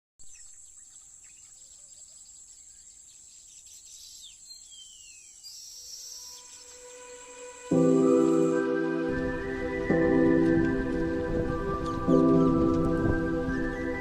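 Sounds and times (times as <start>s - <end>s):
bird chirps: 0.2s - 8.6s
insects trilling: 0.2s - 8.6s.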